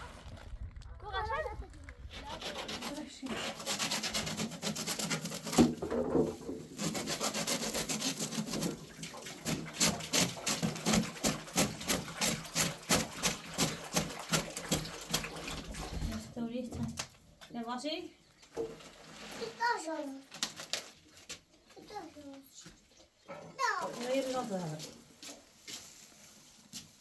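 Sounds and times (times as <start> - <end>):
hand scraping strokes: 2.0 - 15.3, 23.6 - 27.0.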